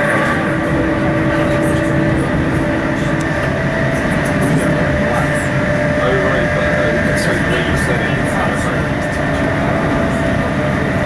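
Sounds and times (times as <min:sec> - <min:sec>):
constant train whine: 0:00.0 - 0:11.0
wheels rumbling on rails: 0:00.0 - 0:11.0.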